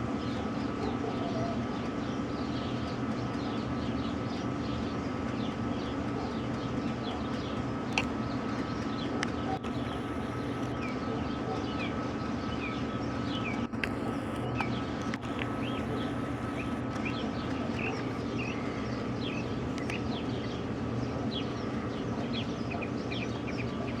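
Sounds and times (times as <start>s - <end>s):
small birds chirping: 0.0s - 24.0s
sharp clicks: 6.5s - 11.9s, 12.6s - 20.6s
low hum: 7.7s - 11.6s, 12.2s - 24.0s.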